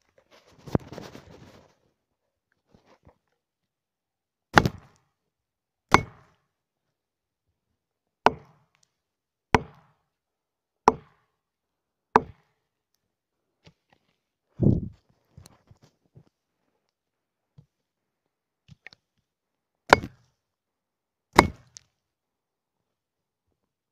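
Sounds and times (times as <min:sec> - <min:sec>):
axe chopping wood: 0:04.6 - 0:05.0, 0:05.9 - 0:06.3, 0:08.3 - 0:08.6, 0:09.6 - 0:10.0, 0:10.9 - 0:11.2, 0:12.2 - 0:12.4, 0:19.9 - 0:20.2, 0:21.4 - 0:21.8.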